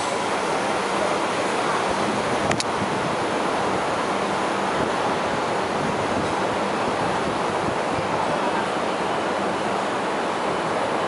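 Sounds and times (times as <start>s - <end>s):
train coaches rumbling on track: 0.0s - 11.0s.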